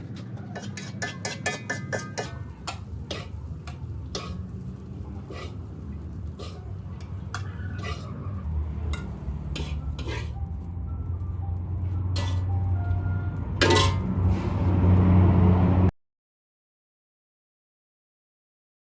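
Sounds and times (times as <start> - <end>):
spatula clinking against a pan: 0.2 - 10.4, 12.2 - 12.5, 13.6 - 14.1.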